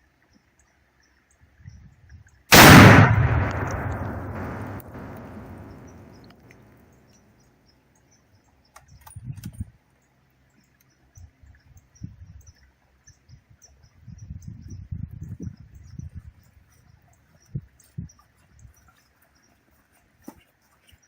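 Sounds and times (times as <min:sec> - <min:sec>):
explosion rumble: 0:02.5 - 0:06.3
low thuds: 0:02.5 - 0:06.3.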